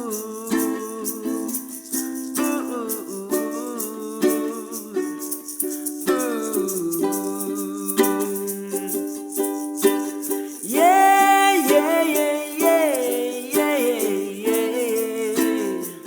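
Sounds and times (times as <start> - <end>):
person singing wordless melody: 0.0 - 16.0
shaker: 0.0 - 16.0
ukulele strumming: 0.0 - 16.0.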